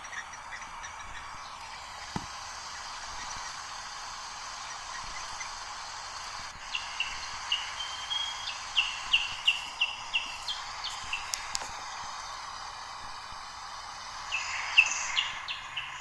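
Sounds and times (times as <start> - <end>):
bird chirping rapidly: 0.0 - 16.0
steady hiss: 0.0 - 16.0
sharp clicks: 1.7 - 14.2.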